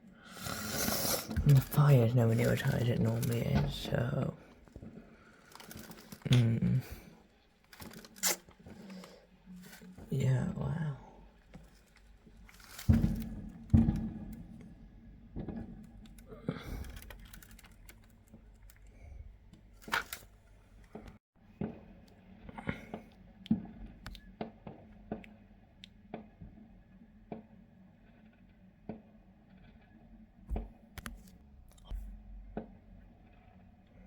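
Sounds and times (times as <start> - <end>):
fireworks popping and cracking: 12.3 - 14.6.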